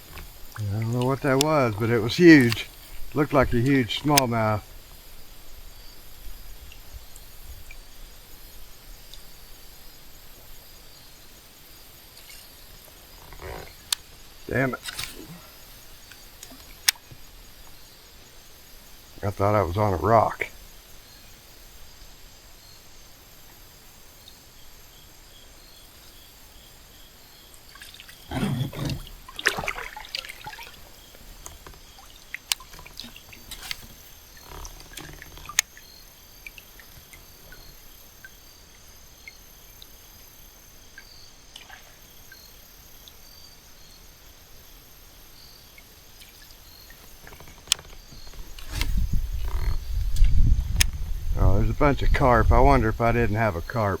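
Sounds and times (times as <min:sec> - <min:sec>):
faint trickling water: 0:00.0 - 0:22.2, 0:25.2 - 0:53.2
insects chirping: 0:00.0 - 0:54.0
bumps and sharp clicks: 0:00.2 - 0:04.6.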